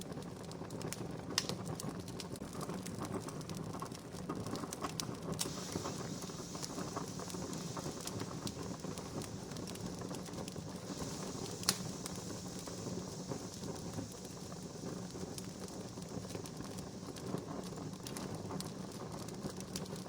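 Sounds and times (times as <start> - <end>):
wood fire crackling: 0.0 - 20.0
fire hissing: 4.4 - 20.0.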